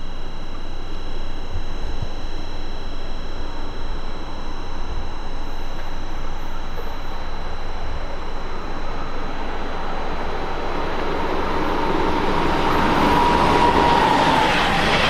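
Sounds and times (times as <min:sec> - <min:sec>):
high steady tone: 0:00.0 - 0:15.0
high-speed train approaching: 0:05.5 - 0:15.0.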